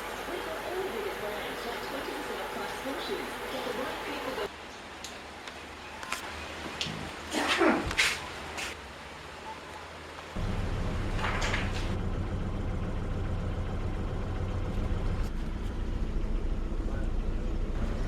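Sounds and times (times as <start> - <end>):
boat engine rumble: 5.6 - 18.0.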